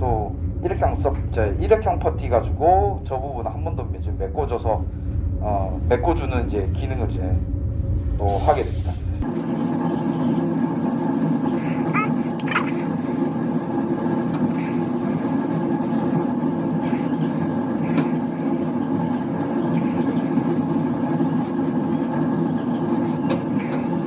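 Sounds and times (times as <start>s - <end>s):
ventilation fans droning: 0.0s - 24.0s.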